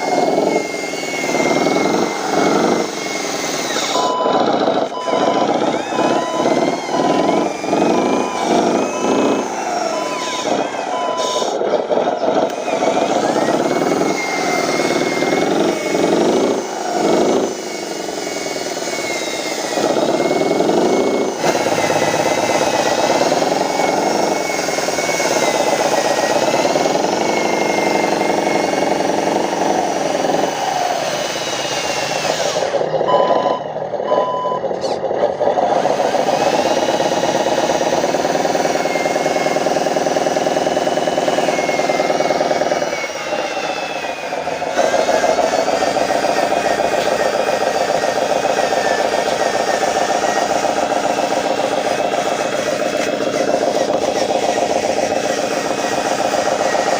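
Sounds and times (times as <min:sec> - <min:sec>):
model truck engine sound: 0:00.0 - 0:56.9
reversing beeper: 0:00.4 - 0:15.6, 0:32.8 - 0:35.0.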